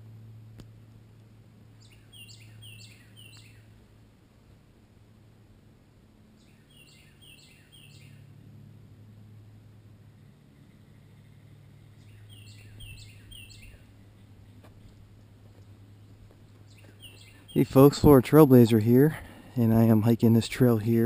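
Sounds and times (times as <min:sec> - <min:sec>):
steady low hum: 0:00.0 - 0:21.0
songbird singing: 0:01.6 - 0:04.0, 0:06.3 - 0:08.5, 0:10.1 - 0:21.0.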